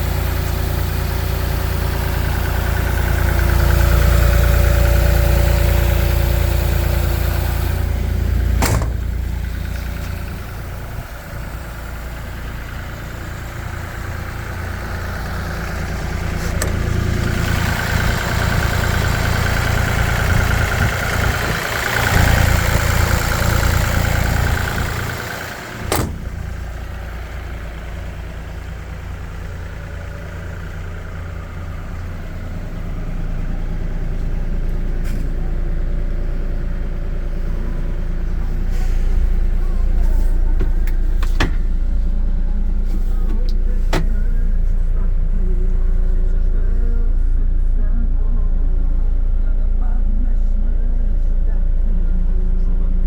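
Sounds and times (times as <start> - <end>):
excavator diesel engine running: 0.0 - 53.0
sharp knocks: 8.6 - 9.2.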